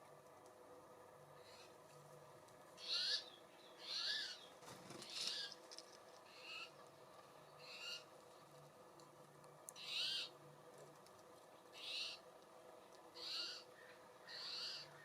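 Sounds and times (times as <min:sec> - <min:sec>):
bird giving harsh calls: 0:02.8 - 0:04.4, 0:09.8 - 0:10.3, 0:11.8 - 0:12.2, 0:13.2 - 0:15.0.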